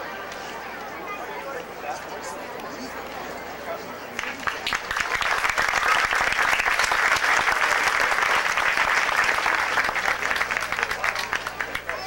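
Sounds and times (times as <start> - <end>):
crowd applauding: 4.1 - 12.0.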